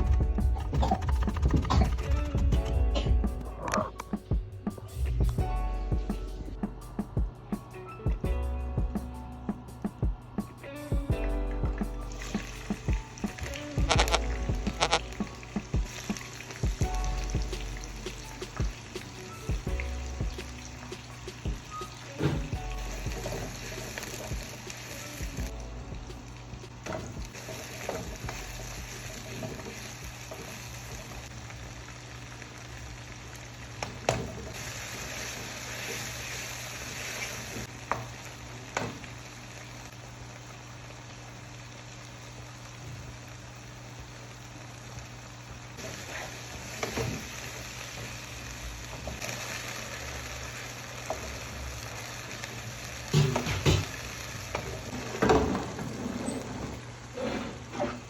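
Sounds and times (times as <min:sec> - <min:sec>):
food sizzling in a pot: 0:12.1 - 0:25.4, 0:26.2 - 0:55.6.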